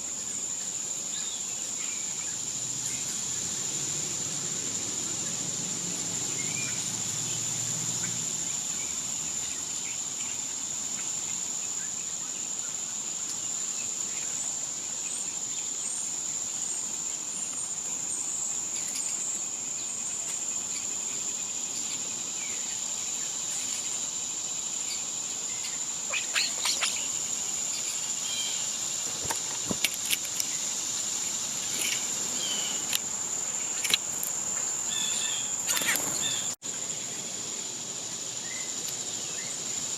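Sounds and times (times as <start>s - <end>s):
high-pitched insect drone: 0.0s - 39.9s
bird chirps: 25.6s - 28.7s.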